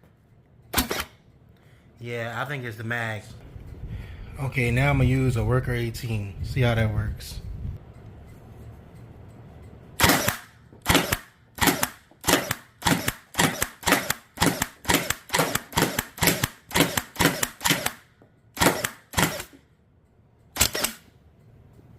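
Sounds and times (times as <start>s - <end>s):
toy dart blaster firing: 0.7s - 1.2s, 10.0s - 19.6s, 20.6s - 21.1s.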